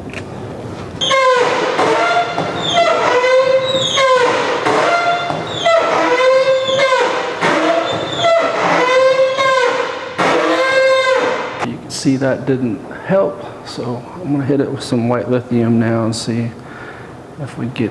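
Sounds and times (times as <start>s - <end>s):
garage door squealing: 1.0s - 11.7s.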